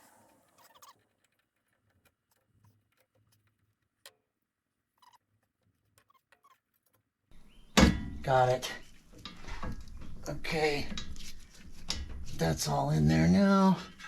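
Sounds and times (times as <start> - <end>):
faint clicks and taps of metal: 1.0 - 4.4, 5.3 - 12.8
metal clatter: 7.3 - 14.0.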